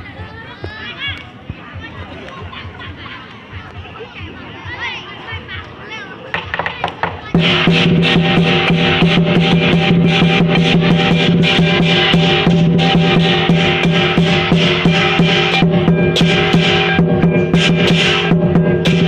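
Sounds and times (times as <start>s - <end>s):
drum beaten rapidly: 0.0s - 5.6s, 6.3s - 19.0s
clashing cymbals: 7.3s - 19.0s
gongs ringing: 7.4s - 19.0s.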